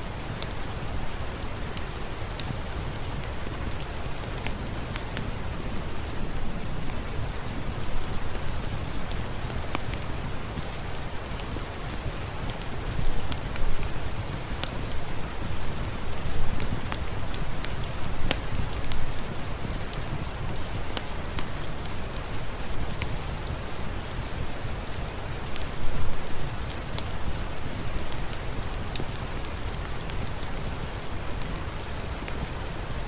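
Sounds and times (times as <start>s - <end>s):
rain falling: 0.0s - 33.0s.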